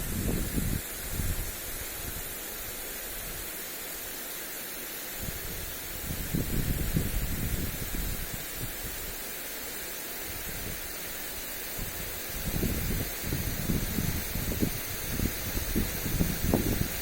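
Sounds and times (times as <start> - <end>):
wind buffeting microphone: 0.0 - 2.4, 5.2 - 9.0, 11.7 - 17.0
sprinkler spraying water: 0.0 - 17.0.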